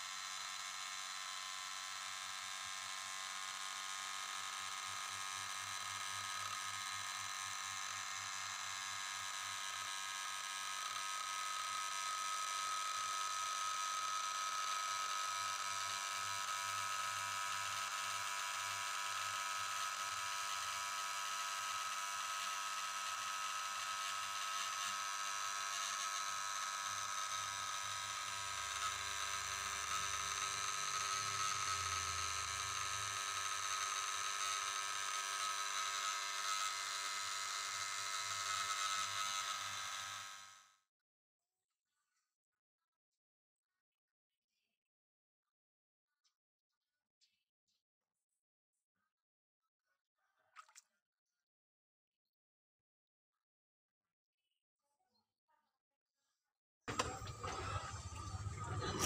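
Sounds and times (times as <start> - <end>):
electric motor whining: 0.0 - 40.6, 56.9 - 59.0.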